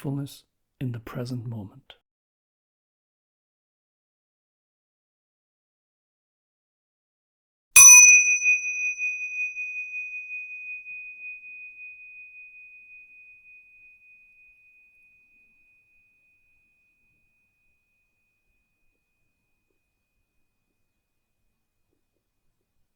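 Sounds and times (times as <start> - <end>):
meditation bell ringing: 7.8 - 17.7.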